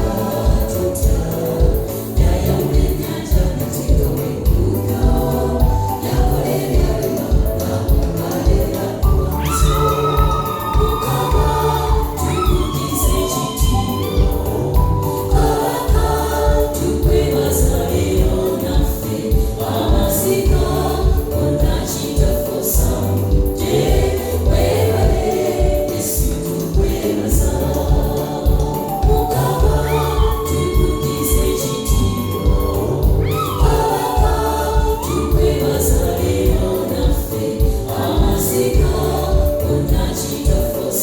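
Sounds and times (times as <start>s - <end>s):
steady bass beat: 0.0s - 40.7s
gospel choir singing: 0.0s - 41.0s.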